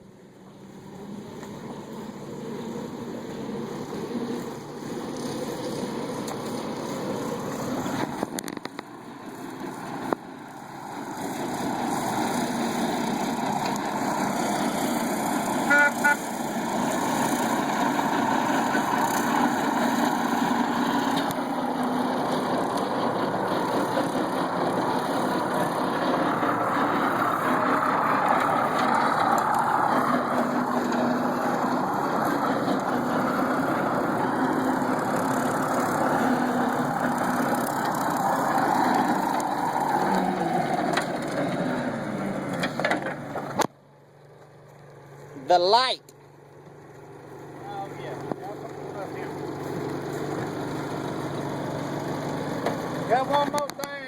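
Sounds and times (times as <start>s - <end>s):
pickup truck engine running: 0.6s - 54.0s
short horn toot: 15.6s - 16.3s.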